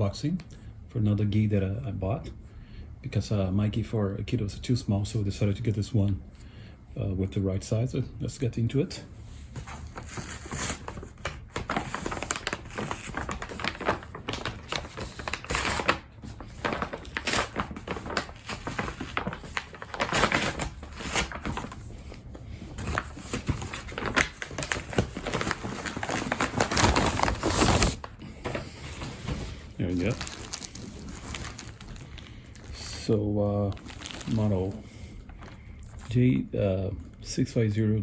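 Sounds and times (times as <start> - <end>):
packaging crinkling and tearing: 9.6 - 36.2.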